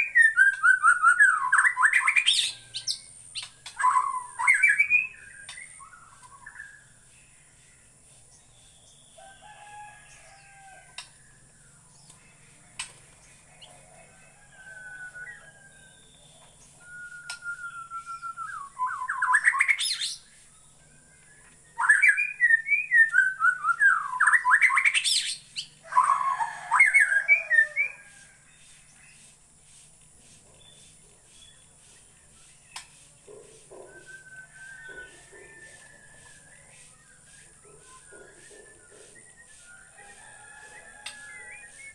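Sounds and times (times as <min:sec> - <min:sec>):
bird whistling and trilling: 0:00.0 - 0:06.8, 0:16.6 - 0:20.3, 0:21.8 - 0:28.1, 0:33.8 - 0:36.4.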